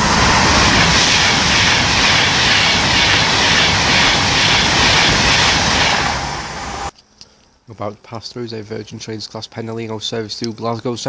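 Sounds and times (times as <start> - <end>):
electric train passing at speed: 0.0 - 6.9.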